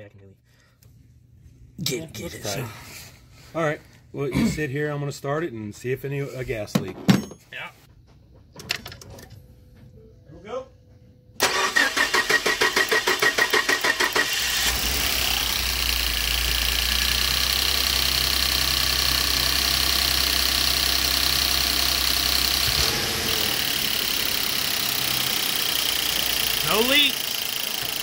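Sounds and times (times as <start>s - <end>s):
engine starter cranking: 11.4s - 28.0s
engine idling with deep rumble: 14.4s - 23.8s.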